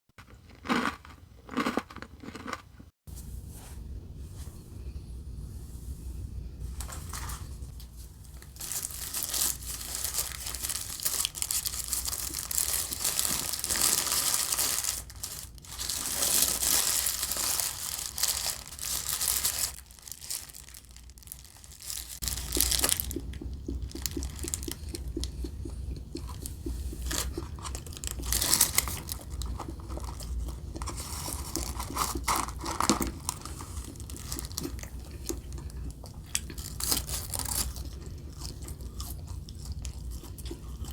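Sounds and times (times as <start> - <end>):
paper wrapping crinkling and tearing: 7.1 - 23.2, 27.1 - 34.6, 36.4 - 38.0.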